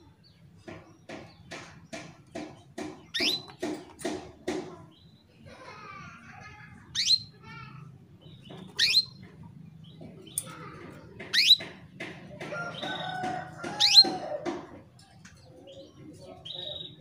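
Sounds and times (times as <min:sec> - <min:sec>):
soft canary twittering: 0:00.2 - 0:04.2, 0:06.9 - 0:07.5, 0:08.2 - 0:14.5, 0:15.4 - 0:17.0
canary call notes: 0:08.7 - 0:09.2, 0:11.3 - 0:11.7, 0:12.5 - 0:14.6.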